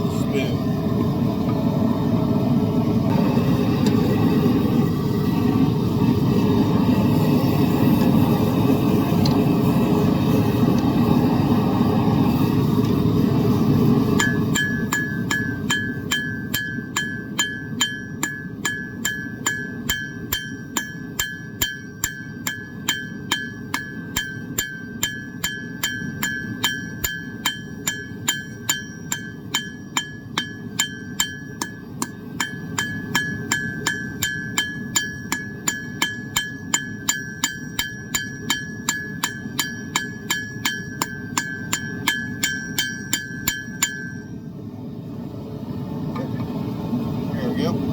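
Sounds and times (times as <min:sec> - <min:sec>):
forge burner rushing: 0:00.0 - 0:47.9
hammer striking metal on anvil: 0:13.9 - 0:44.4.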